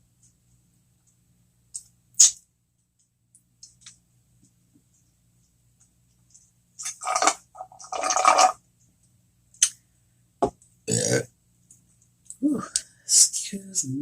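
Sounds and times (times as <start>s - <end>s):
eating and mouth sounds: 1.8s - 2.4s
loud low burp: 10.9s - 11.3s.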